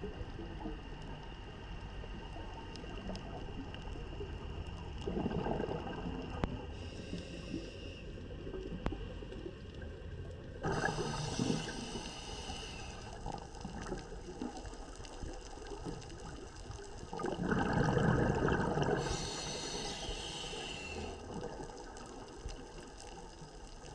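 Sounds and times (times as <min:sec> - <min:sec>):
bubbling exhalation underwater: 0:05.0 - 0:06.5, 0:17.0 - 0:19.3
regulator hissing inhalation: 0:10.6 - 0:13.2, 0:19.0 - 0:21.2.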